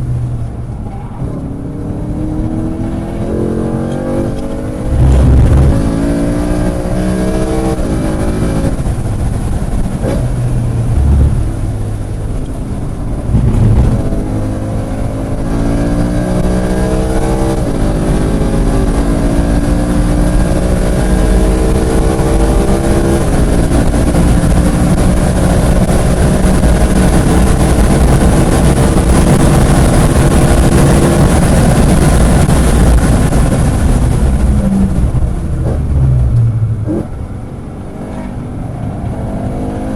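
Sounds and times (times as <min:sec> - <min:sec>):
car engine accelerating: 0:00.0 - 0:39.9
wind and road noise: 0:00.0 - 0:39.9.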